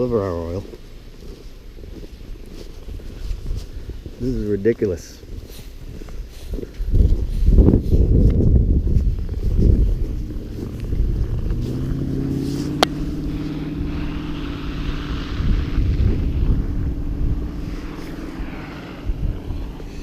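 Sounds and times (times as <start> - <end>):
wind rumble on microphone: 0.0 - 20.0
engine droning: 9.1 - 20.0.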